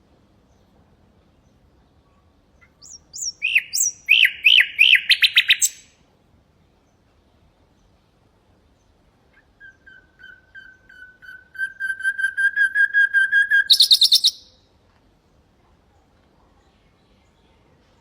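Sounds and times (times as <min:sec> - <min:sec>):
nightingale singing: 0:02.6 - 0:06.0, 0:09.3 - 0:14.6.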